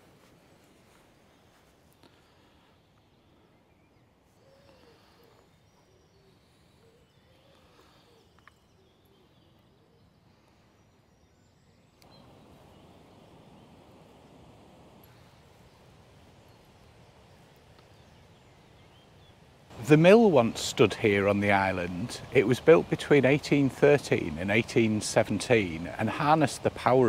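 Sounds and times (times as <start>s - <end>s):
background hiss: 0.0s - 27.0s
faint high bird chirps: 0.9s - 19.6s
low wavering bird calls: 1.6s - 27.0s.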